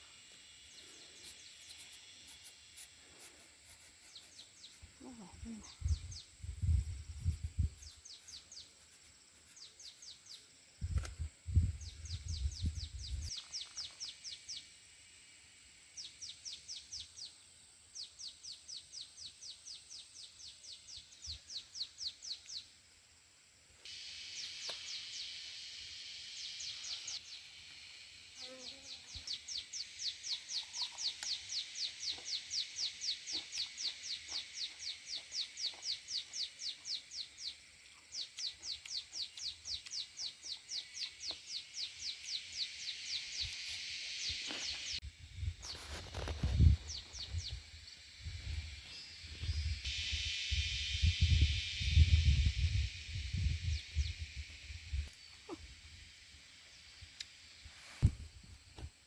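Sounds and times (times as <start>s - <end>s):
bird chirping rapidly: 28.8s - 37.6s.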